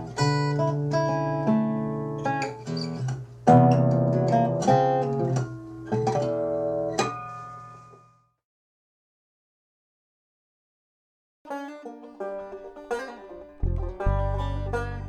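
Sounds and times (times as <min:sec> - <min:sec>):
plucked acoustic guitar: 0:00.0 - 0:07.4, 0:11.5 - 0:15.0.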